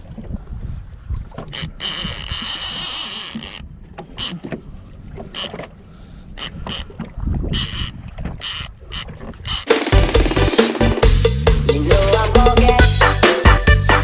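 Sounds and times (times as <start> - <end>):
wind: 0.0 - 11.0
boat noise: 0.0 - 13.2
fishing reel drag whirring: 1.5 - 4.4, 5.4 - 5.6, 6.4 - 6.9, 7.5 - 9.8.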